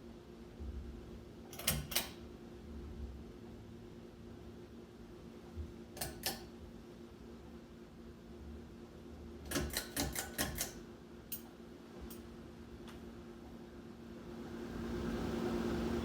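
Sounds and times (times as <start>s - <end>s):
pull-chain switch clicks: 1.5s - 2.2s.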